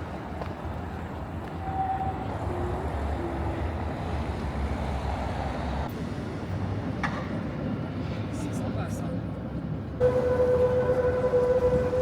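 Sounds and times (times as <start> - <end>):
road traffic rumble: 9.2 - 12.0.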